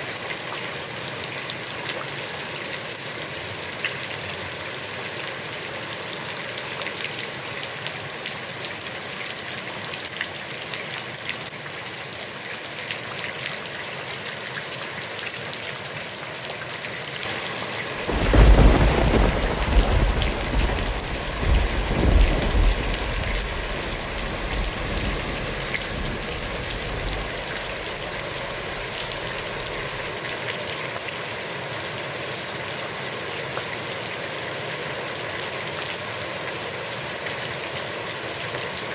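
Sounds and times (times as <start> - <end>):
heavy rain on a pond: 0.0 - 38.9
rolling thunder: 17.2 - 30.3.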